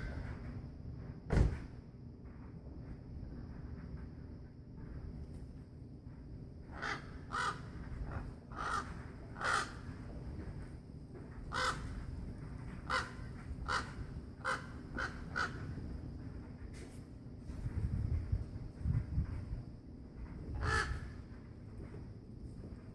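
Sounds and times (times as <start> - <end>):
crow cawing: 6.7 - 10.0, 11.5 - 12.0, 12.8 - 15.8, 20.6 - 21.2.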